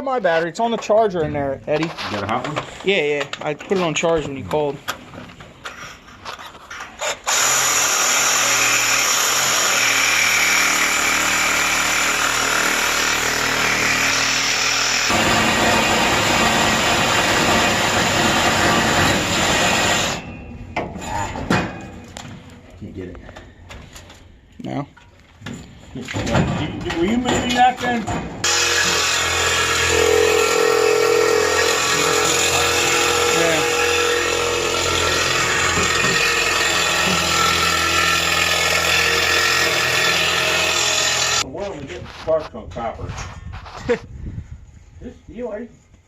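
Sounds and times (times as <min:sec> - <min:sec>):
power tool cutting metal pipe: 0:07.0 - 0:20.3, 0:28.4 - 0:41.4
metal knocks: 0:20.2 - 0:22.5, 0:25.4 - 0:40.5.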